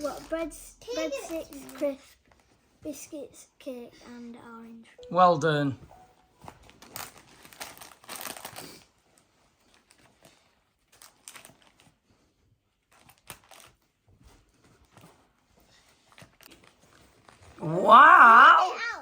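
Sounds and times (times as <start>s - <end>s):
snack packets rustling: 0.0s - 2.5s, 6.4s - 17.6s.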